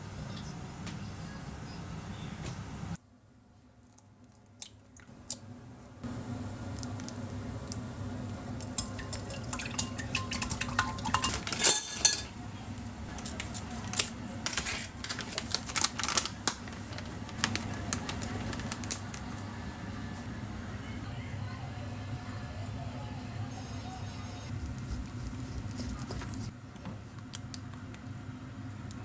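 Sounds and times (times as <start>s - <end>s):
dishes and utensils clinking: 8.7s - 12.4s, 14.4s - 15.4s
steady low hum: 16.4s - 29.0s.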